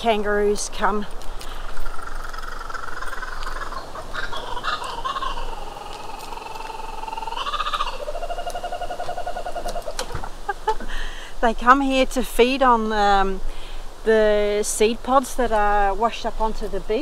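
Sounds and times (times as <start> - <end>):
bird calling: 0.0 - 11.3.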